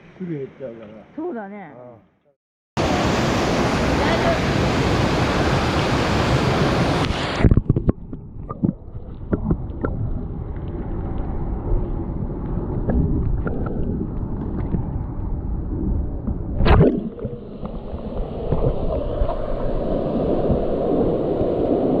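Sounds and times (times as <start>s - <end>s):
stream water rushing: 2.8s - 7.5s.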